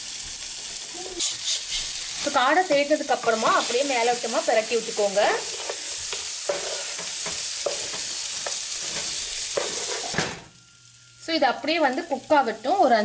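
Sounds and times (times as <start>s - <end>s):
quails sizzling in hot oil: 0.0s - 13.0s
spatula scraping pan: 4.9s - 10.2s.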